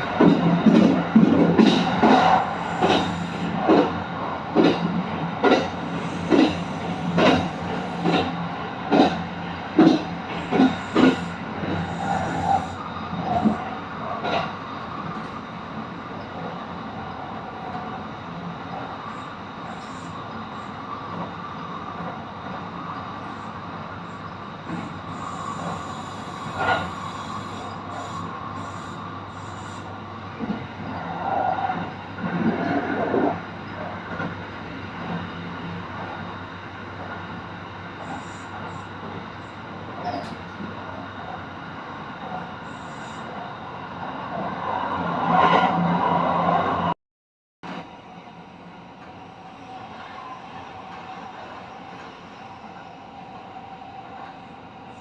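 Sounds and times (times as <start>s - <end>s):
train wheels clacking over rail joints: 0.0s - 12.7s
train rumbling: 0.0s - 47.0s, 47.6s - 55.0s.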